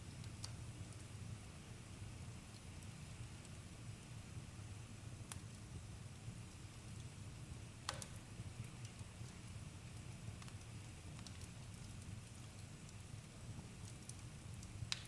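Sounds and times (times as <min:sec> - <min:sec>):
campfire crackling and popping: 0:00.0 - 0:01.1, 0:05.2 - 0:15.0.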